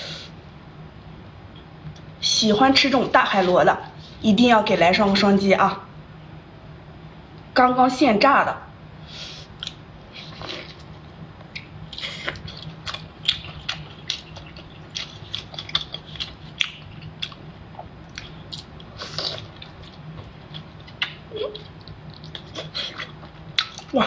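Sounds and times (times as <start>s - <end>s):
mouth clicks and smacks: 9.6s - 10.8s
person chewing: 9.6s - 10.9s, 11.5s - 24.0s.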